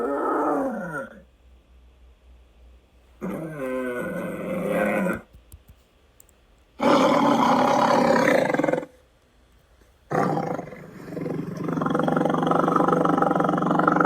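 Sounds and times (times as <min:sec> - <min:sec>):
big cat roaring: 0:00.0 - 0:01.2, 0:03.2 - 0:05.3, 0:06.8 - 0:08.9, 0:10.1 - 0:14.0.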